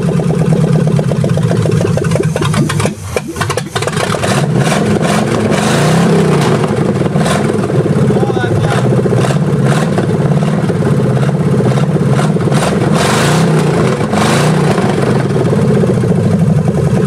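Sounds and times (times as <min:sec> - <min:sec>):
loud vee eight engine revving: 0:00.0 - 0:15.8.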